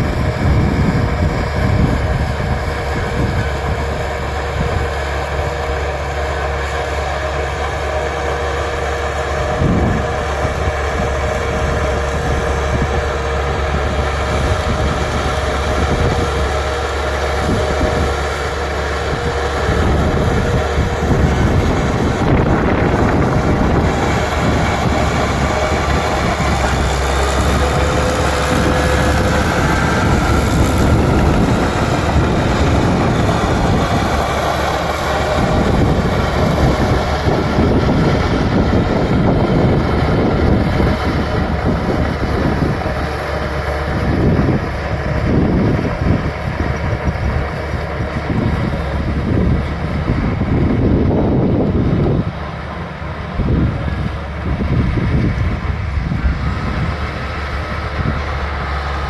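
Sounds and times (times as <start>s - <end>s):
bulldozer diesel engine: 0.0s - 59.0s
steel tracks clattering: 8.4s - 40.0s.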